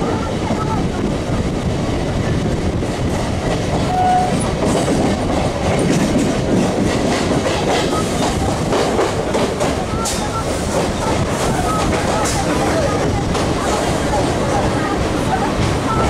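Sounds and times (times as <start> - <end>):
wind rushing: 0.0 - 16.0
train wheels clattering over rail joints: 2.6 - 16.0.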